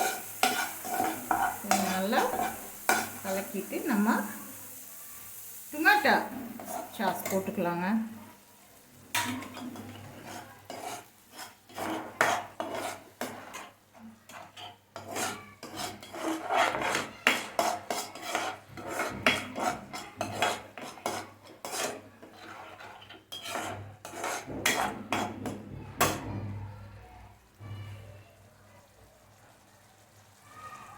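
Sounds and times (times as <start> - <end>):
spoon scraping and clinking dish: 0.0 - 3.2, 6.5 - 7.5, 9.2 - 26.3.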